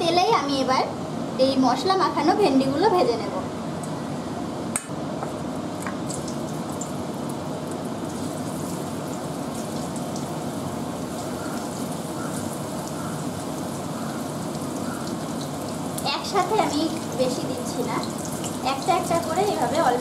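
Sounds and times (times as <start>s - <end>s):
okra sizzling in hot oil: 6.0s - 20.0s.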